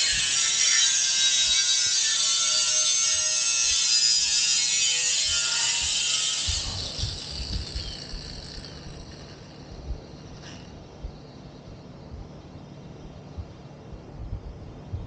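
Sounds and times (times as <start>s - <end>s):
handheld power tool whirring: 0.0s - 10.8s.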